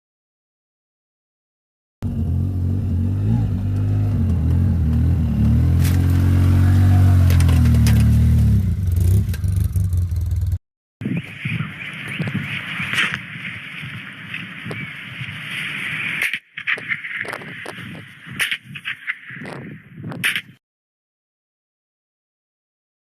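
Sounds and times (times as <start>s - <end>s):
engine revving: 2.0s - 10.6s.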